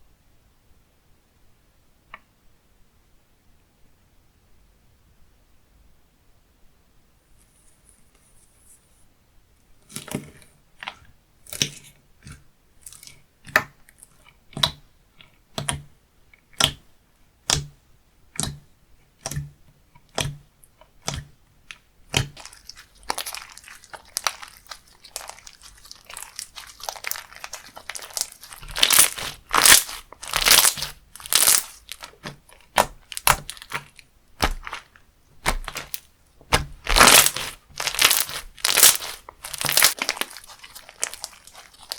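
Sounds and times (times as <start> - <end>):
slime squished by hand crackling: 21.0 - 41.9.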